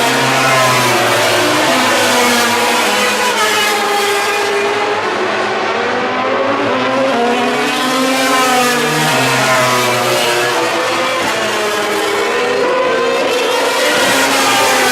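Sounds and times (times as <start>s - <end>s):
racing motorcycles at high revs: 0.0s - 3.8s, 6.0s - 14.9s.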